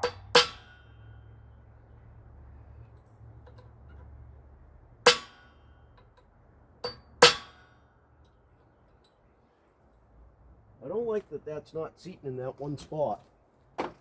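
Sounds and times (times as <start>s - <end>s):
sharp metallic clanks: 0.0s - 1.5s, 5.0s - 8.0s.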